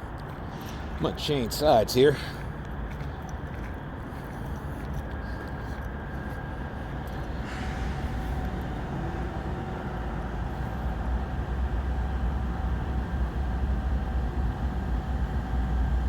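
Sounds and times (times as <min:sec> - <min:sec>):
diesel locomotives rumbling: 0:00.0 - 0:16.0
faint steady whine: 0:00.0 - 0:16.0.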